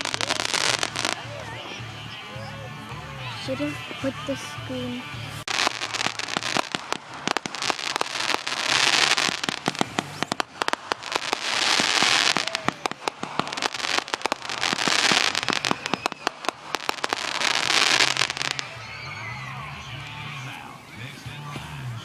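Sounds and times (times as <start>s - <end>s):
fireworks crackling pops: 0.0s - 21.9s
fireworks rushing hiss: 0.0s - 21.9s.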